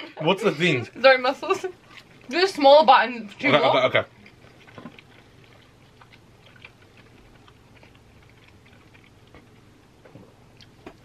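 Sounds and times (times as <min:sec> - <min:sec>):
chewing with wet mouth clicks: 0:04.0 - 0:09.8, 0:10.5 - 0:11.0.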